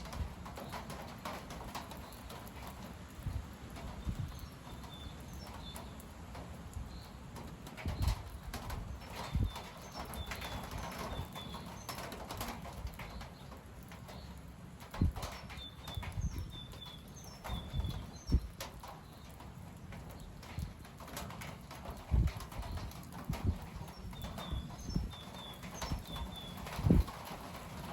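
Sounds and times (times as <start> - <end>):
wind buffeting microphone: 0.0 - 13.5, 14.1 - 27.9
wind rushing through trees: 0.0 - 27.9
bird chirping: 15.4 - 19.2, 23.9 - 27.0.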